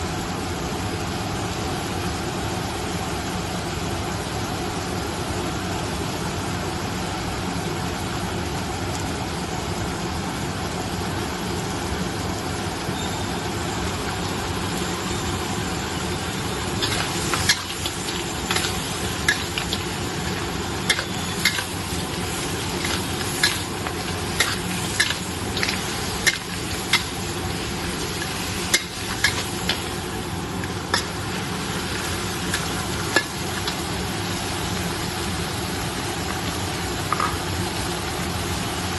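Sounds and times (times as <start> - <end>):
low continuous roar: 0.0 - 38.9
crab sizzling in a pan: 0.1 - 38.9
utensil clacking against pan: 16.8 - 30.0.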